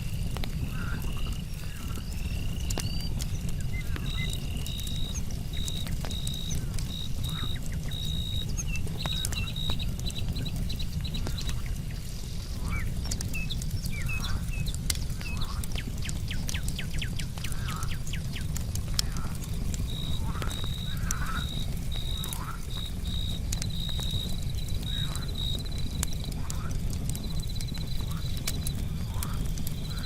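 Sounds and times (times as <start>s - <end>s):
campfire crackling: 0.0s - 30.0s
crickets chirping: 4.0s - 8.4s, 19.9s - 25.7s
night creatures calling: 19.0s - 22.9s, 24.8s - 25.4s.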